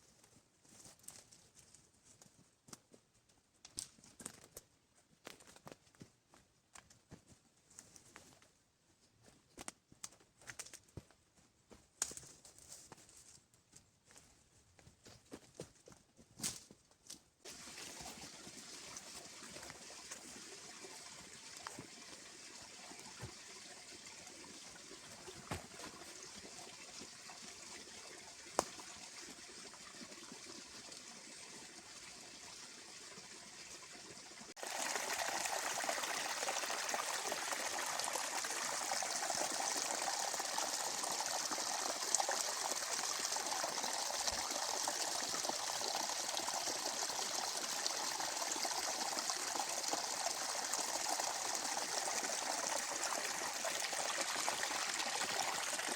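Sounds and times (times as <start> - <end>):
running water: 17.5 - 55.9.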